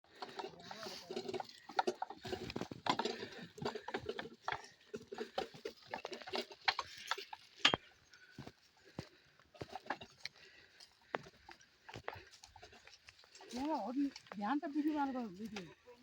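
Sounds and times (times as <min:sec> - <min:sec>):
clattering clicks and knocks: 0:00.1 - 0:07.9.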